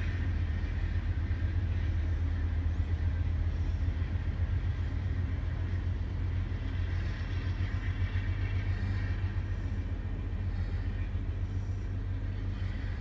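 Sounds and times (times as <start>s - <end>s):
train rumble from inside a car: 0.0s - 13.0s.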